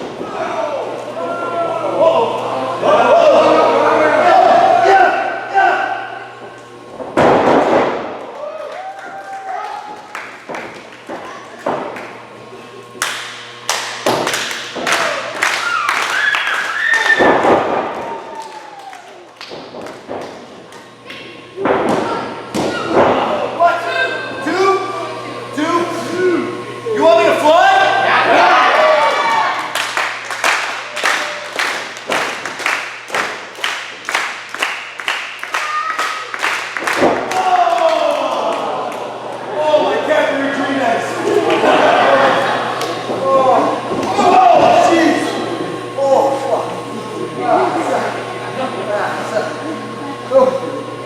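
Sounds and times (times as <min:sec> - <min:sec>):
crowd clapping in unison: 0:08.2 - 0:11.1, 0:13.0 - 0:17.3, 0:18.0 - 0:21.2, 0:29.6 - 0:39.4
person shouting: 0:37.3 - 0:38.5.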